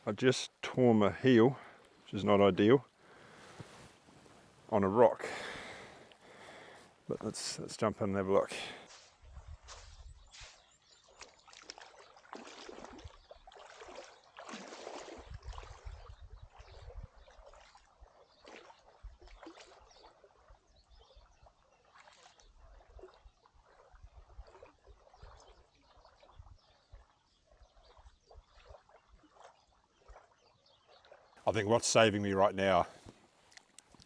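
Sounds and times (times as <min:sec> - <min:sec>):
water splashing and sloshing: 0:08.5 - 0:34.0
water trickling: 0:32.8 - 0:34.0.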